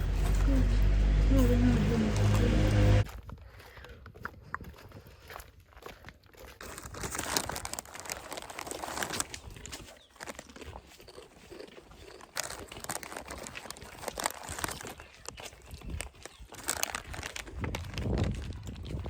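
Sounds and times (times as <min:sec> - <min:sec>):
crinkling and rustling: 0:06.6 - 0:19.0.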